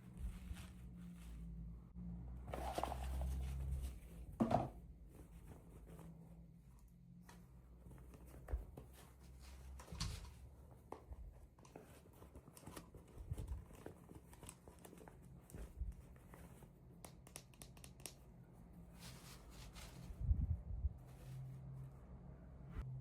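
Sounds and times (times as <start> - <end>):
packaging clicks and taps: 17.0 - 18.2.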